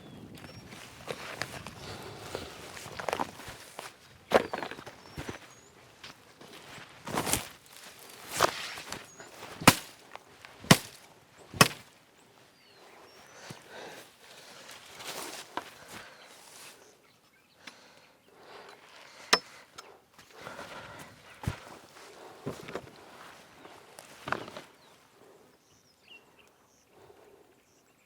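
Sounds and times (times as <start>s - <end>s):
rustling: 0.8s - 11.9s.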